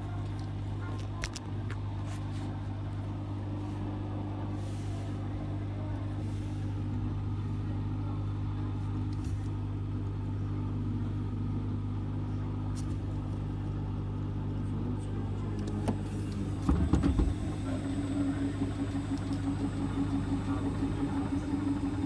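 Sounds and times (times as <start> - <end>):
washing machine drum spinning: 15.8 - 22.0.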